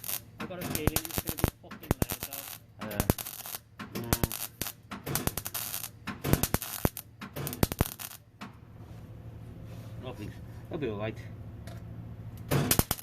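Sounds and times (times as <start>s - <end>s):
sharp knocks and clatter on metal: 0.4s - 2.2s, 2.8s - 8.6s, 12.5s - 13.0s.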